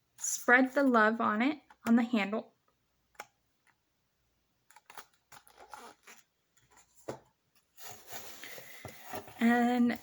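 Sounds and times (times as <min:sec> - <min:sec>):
packaging rustling: 0:04.7 - 0:10.0.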